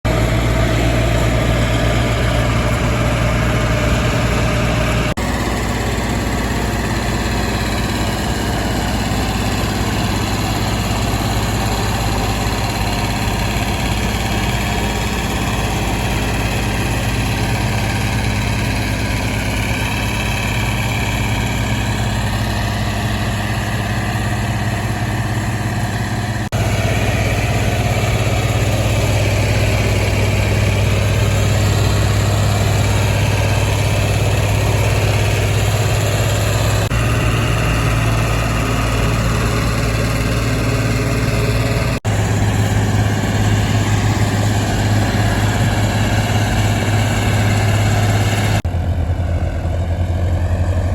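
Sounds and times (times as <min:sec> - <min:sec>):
diesel tractor engine idling: 0:00.0 - 0:50.9.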